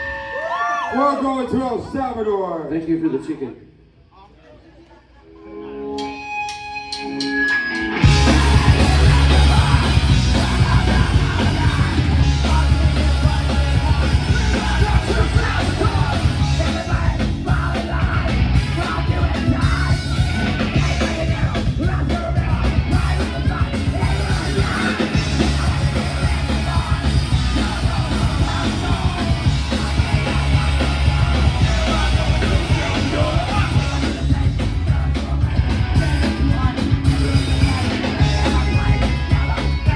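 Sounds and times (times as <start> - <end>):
rock band playing live: 5.5 - 39.9
singer yelling: 8.0 - 39.9.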